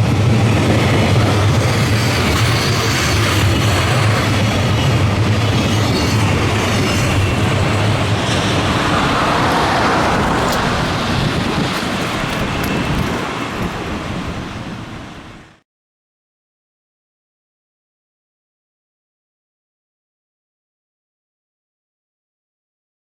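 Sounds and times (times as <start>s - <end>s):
train wheels rumbling on rail: 0.0s - 15.5s.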